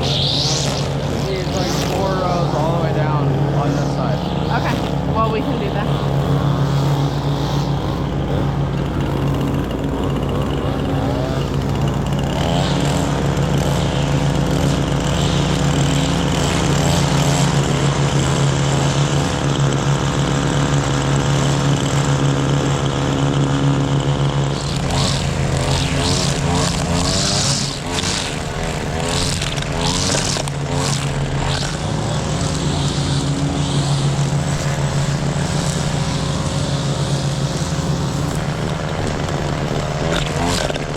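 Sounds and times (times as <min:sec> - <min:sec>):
wavering crackling sound: 0:00.0 - 0:06.2
riding lawn mower engine: 0:00.0 - 0:40.9.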